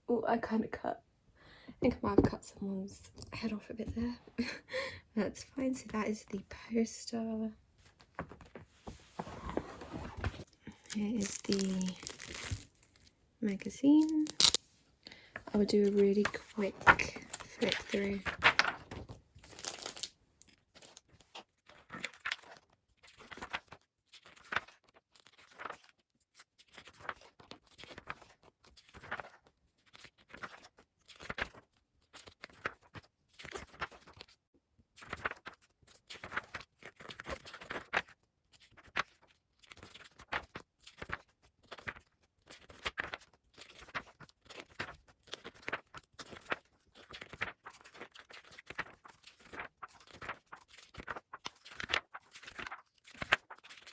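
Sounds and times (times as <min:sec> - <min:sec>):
magazine pages flipping: 0:07.8 - 0:14.6, 0:15.4 - 0:26.0, 0:35.0 - 0:53.9.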